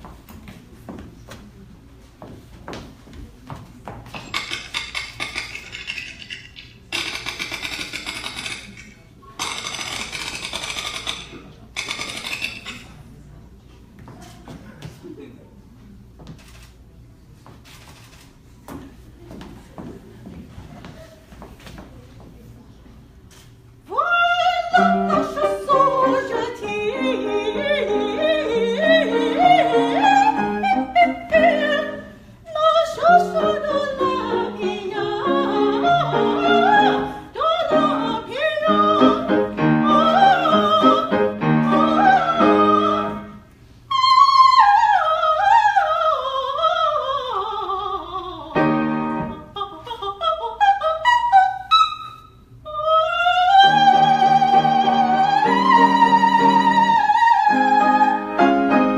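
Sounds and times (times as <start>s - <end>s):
piano accompaniment: 24.7s - 32.1s, 33.0s - 43.4s, 48.6s - 49.5s, 53.6s - 58.9s.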